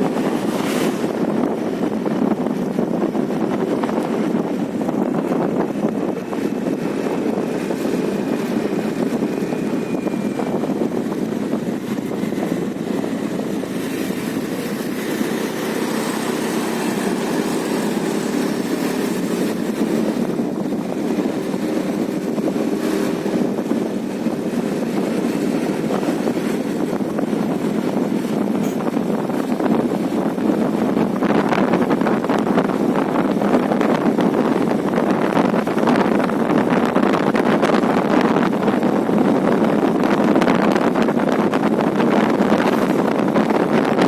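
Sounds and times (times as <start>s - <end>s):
vehicle engine and road noise: 0.0s - 44.0s
wind buffeting microphone: 0.0s - 44.0s.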